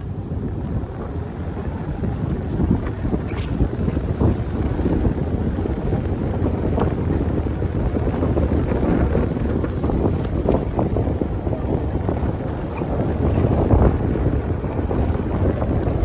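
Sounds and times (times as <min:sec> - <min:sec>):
wind buffeting microphone: 0:00.0 - 0:16.0
plow truck engine rumbling: 0:12.0 - 0:16.0.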